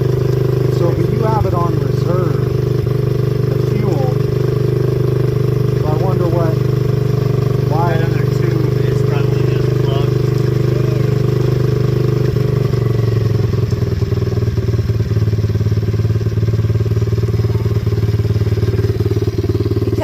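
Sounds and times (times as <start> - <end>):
small motorbike engine idling: 0.0 - 20.0.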